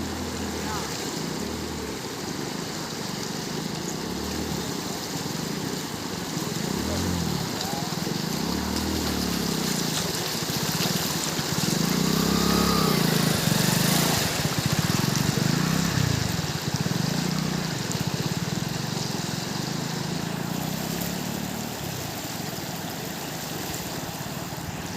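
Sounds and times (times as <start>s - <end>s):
rushing water: 0.0s - 24.9s
vehicles passing: 0.0s - 24.9s.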